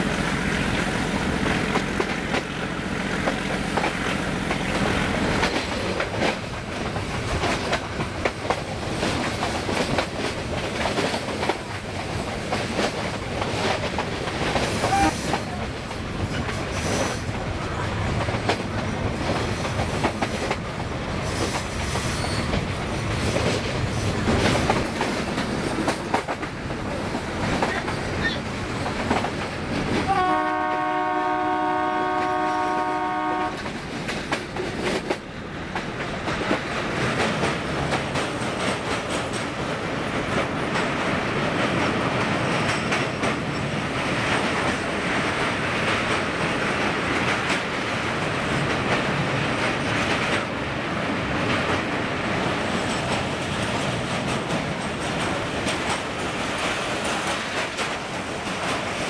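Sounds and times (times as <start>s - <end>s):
train coach rattling: 0.0s - 59.0s
train wheels clacking: 0.0s - 59.0s
locomotive horn: 30.1s - 33.7s.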